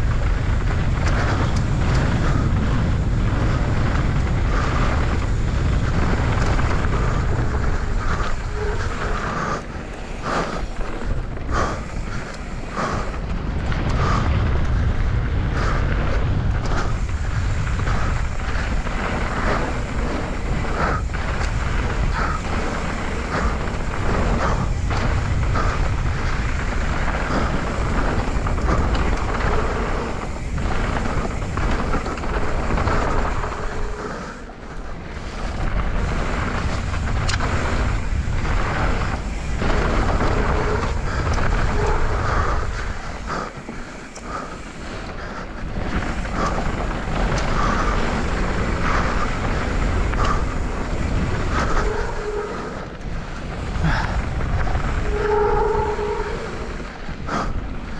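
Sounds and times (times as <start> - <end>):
bike tyres rumbling over dirt: 0.0 - 57.9
wind buffeting microphone: 0.0 - 57.9.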